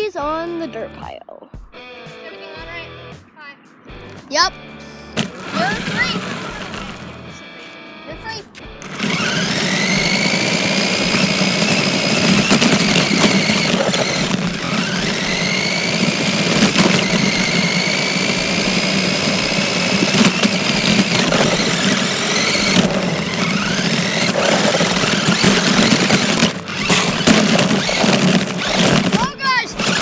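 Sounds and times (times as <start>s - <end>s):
rc car electric motor whining: 5.2s - 7.4s, 8.8s - 30.0s
car rumbling over dirt: 8.8s - 30.0s.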